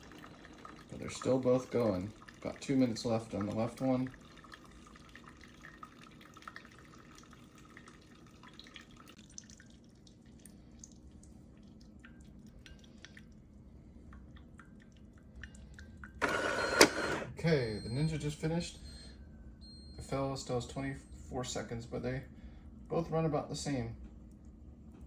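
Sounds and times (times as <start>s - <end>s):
coffee dripping into glasses: 0.0s - 11.0s, 14.0s - 21.1s
low steady hum: 0.0s - 25.0s.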